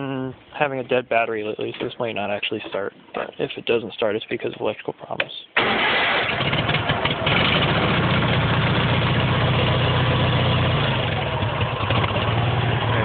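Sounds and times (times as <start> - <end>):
small engine idling: 5.7 - 13.0.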